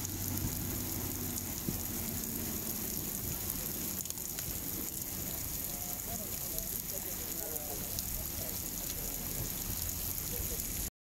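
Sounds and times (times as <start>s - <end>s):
heavy rain on pavement: 0.0s - 10.9s.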